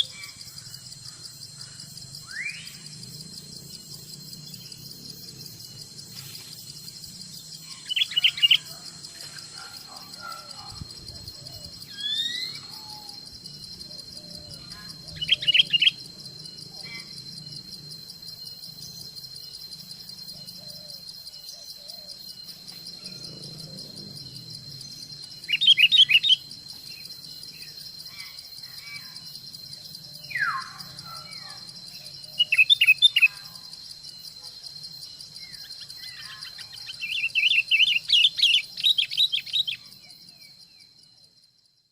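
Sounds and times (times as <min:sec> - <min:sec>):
insect buzzing: 0:00.0 - 0:41.9
bird calls: 0:07.7 - 0:10.8, 0:14.6 - 0:16.0.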